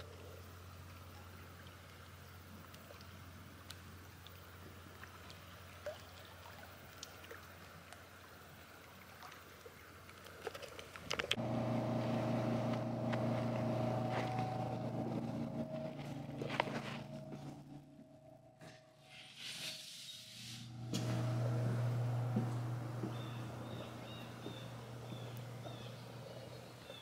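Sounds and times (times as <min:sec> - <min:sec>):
motor drone with low hum: 0:11.1 - 0:18.9, 0:20.6 - 0:27.0.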